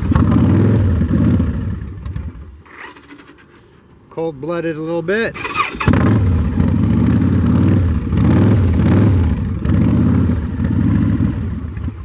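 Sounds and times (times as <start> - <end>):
motorcycle engine running: 0.0 - 3.5, 5.4 - 12.0.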